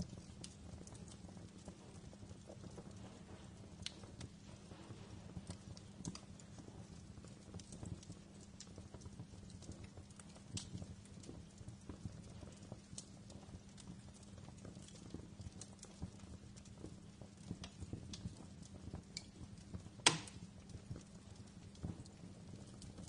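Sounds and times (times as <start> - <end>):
faint low hum: 0.0 - 23.0
wood fire crackling: 0.0 - 23.0.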